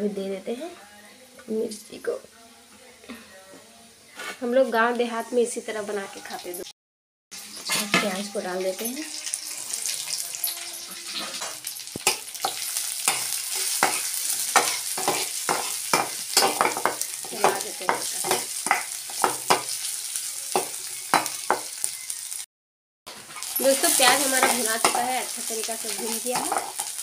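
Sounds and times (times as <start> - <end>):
vegetables frying in hot oil: 7.4 - 22.5, 23.1 - 27.0
spatula scraping a pan: 7.5 - 8.2, 9.1 - 21.7, 23.1 - 27.0.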